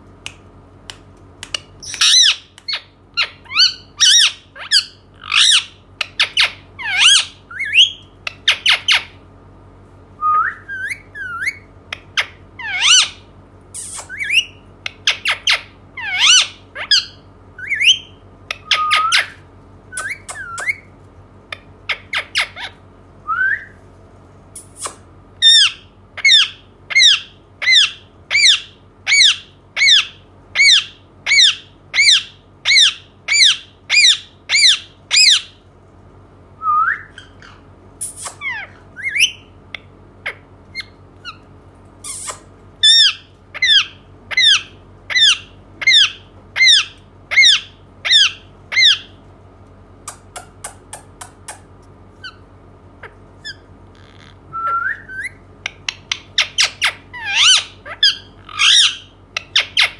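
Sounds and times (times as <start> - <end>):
parakeet squawking: 1.8 - 9.2, 10.8 - 13.2, 13.8 - 19.4, 21.5 - 22.8, 24.7 - 35.6, 37.1 - 49.2, 52.2 - 59.9.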